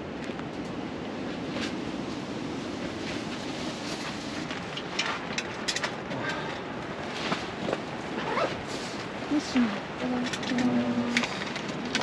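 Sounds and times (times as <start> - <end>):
strong wind against tent: 0.0 - 12.0
light clicks and rustles: 2.8 - 12.0.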